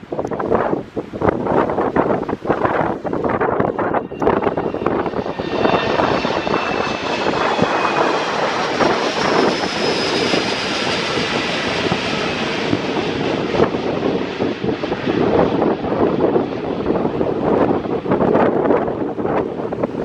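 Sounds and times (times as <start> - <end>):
jet engines roaring on take-off: 0.0 - 20.0
high whining tones: 2.4 - 13.8.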